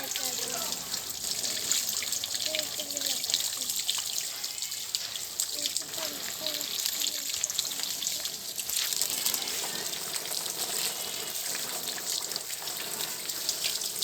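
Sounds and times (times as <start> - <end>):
water running and splashing: 0.0 - 14.0.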